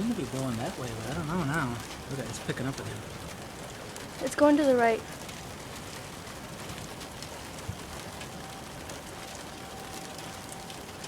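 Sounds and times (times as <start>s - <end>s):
rain falling: 0.0s - 11.0s
faint steady tone: 7.3s - 11.0s.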